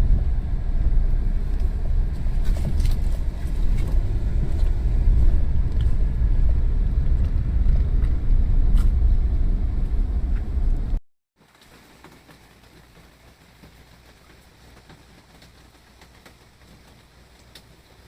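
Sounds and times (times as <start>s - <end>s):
gusty wind buffeting microphone: 0.0s - 11.0s.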